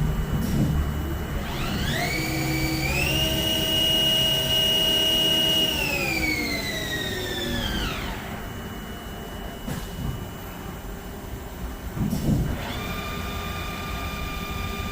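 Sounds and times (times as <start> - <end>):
lathe spindle whine: 0.0 - 11.9, 12.5 - 14.9
machine low hum: 0.0 - 14.9.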